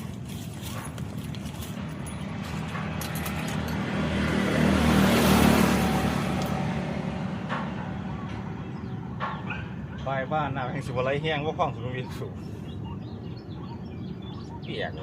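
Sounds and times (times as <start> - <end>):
motorboat passing by: 1.8 - 9.2.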